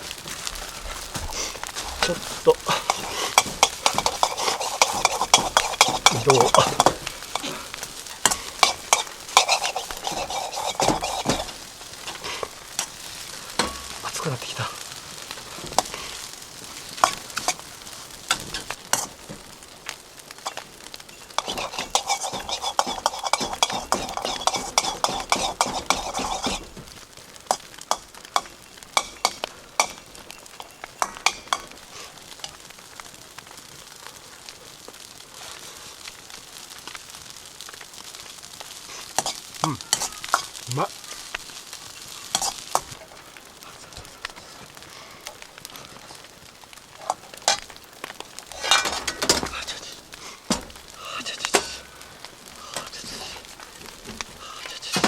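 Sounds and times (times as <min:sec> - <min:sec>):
rice sizzling in a wok: 0:00.0 - 0:55.0
utensil scraping against a pan: 0:00.2 - 0:19.5, 0:21.2 - 0:30.3, 0:38.7 - 0:40.6, 0:42.0 - 0:43.2, 0:47.0 - 0:47.8, 0:48.4 - 0:51.8, 0:52.7 - 0:53.6.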